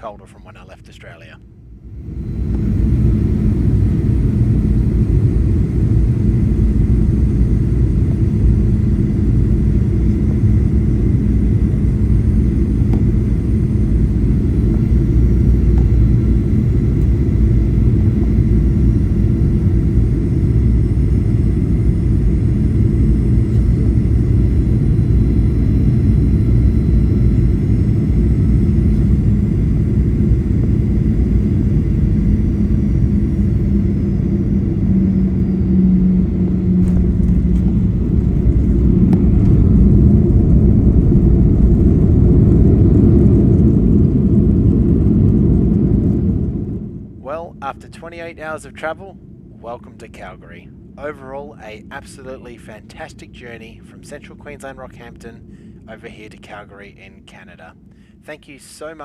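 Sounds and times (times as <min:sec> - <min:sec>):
airplane engines rumbling: 0:00.0 - 0:59.0
faint steady whine: 0:00.0 - 0:59.0
air rushing in cabin: 0:01.9 - 0:46.9.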